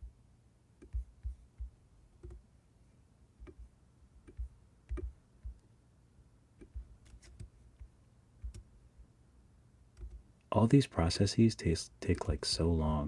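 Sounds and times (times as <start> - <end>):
mouse and keyboard clicks: 2.2 - 2.4, 3.4 - 5.6, 6.6 - 8.7, 10.0 - 10.2, 12.1 - 12.7.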